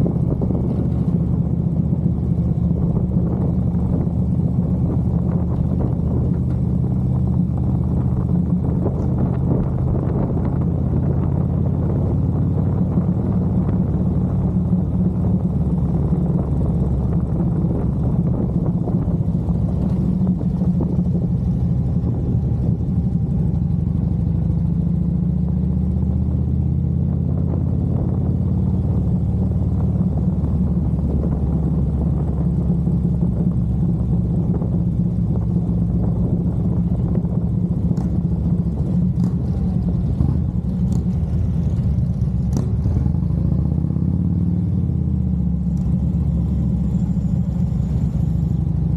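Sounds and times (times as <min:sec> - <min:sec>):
motorcycle engine rumbling: 0:00.0 - 0:48.9.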